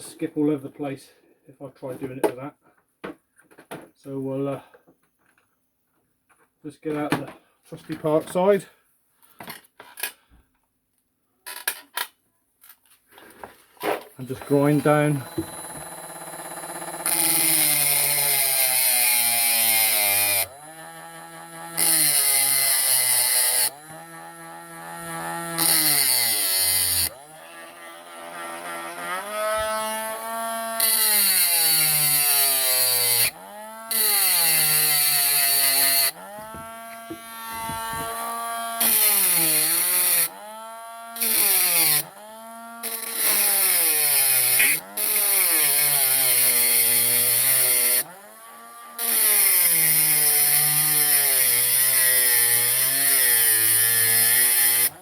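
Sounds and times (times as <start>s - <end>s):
power tool grinding metal: 13.9s - 55.0s
motor running: 14.4s - 18.3s, 35.8s - 40.6s.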